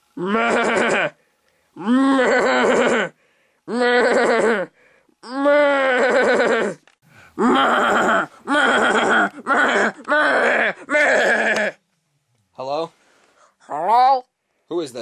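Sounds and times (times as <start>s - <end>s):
person making wordless vocal sounds: 1.8s - 6.8s, 7.4s - 11.8s.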